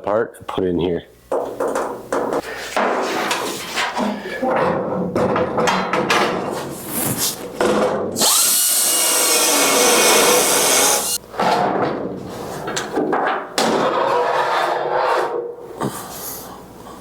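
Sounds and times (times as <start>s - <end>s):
knocking and scraping of work: 1.3s - 16.0s
power tool spinning: 8.2s - 11.2s.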